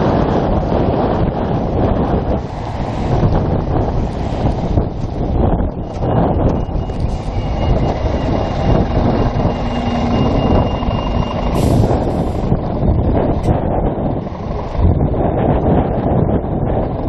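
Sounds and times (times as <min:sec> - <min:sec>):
vehicle running: 0:00.0 - 0:17.0
wind buffeting microphone: 0:00.0 - 0:17.0
faint steady tone: 0:05.9 - 0:12.3.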